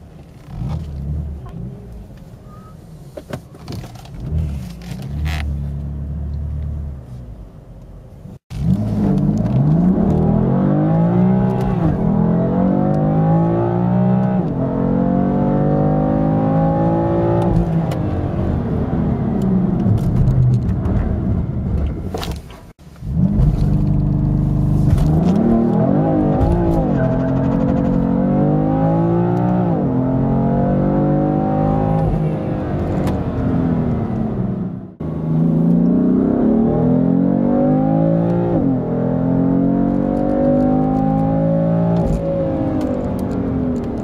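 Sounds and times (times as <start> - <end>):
car engine accelerating hard: 8.6 - 22.0, 23.0 - 44.0.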